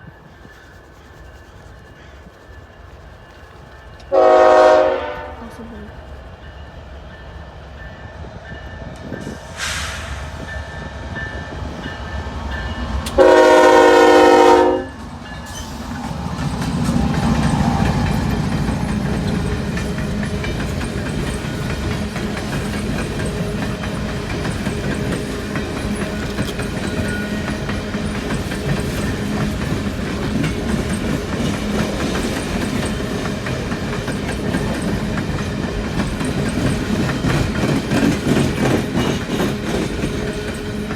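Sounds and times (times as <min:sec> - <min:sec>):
train cars rolling: 0:00.0 - 0:40.9
locomotive horn blast: 0:04.1 - 0:05.7, 0:13.2 - 0:15.0
locomotive engine rumble: 0:08.3 - 0:40.9.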